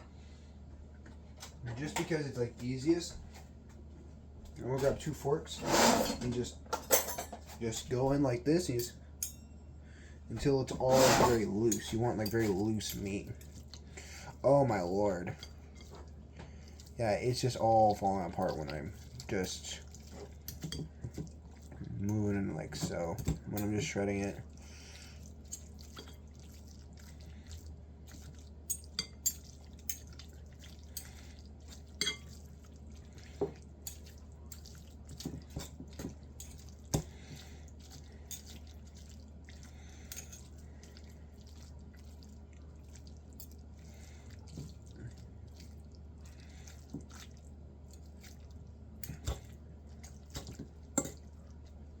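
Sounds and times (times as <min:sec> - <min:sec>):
forks scraping in a pot: 0:05.5 - 0:06.3, 0:10.7 - 0:13.1, 0:32.0 - 0:32.4.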